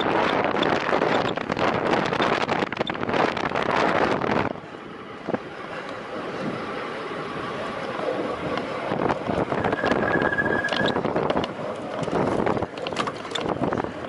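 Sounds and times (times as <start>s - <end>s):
wind rushing over microphone: 0.0s - 14.0s
thin high squeal: 9.5s - 11.0s
small clicks and rattles: 10.2s - 13.9s.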